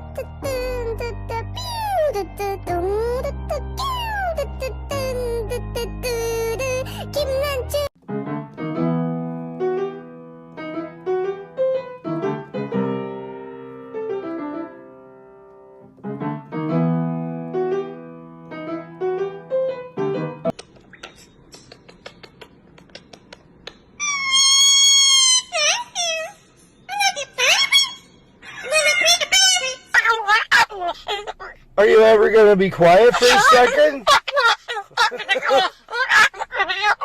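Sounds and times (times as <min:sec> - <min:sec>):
solo piano melody: 0:00.0 - 0:20.5
parrot screech: 0:24.0 - 0:26.3.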